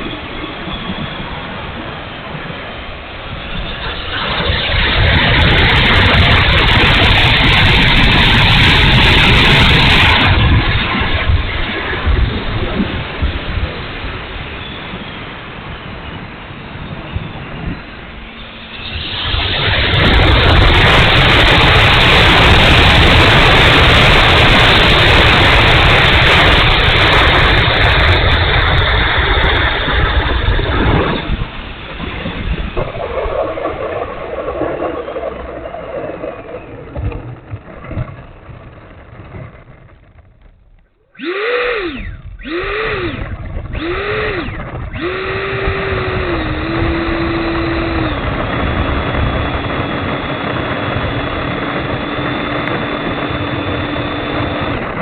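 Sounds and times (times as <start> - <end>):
electric jet fan whining: 0.0 - 33.2, 36.2 - 55.0.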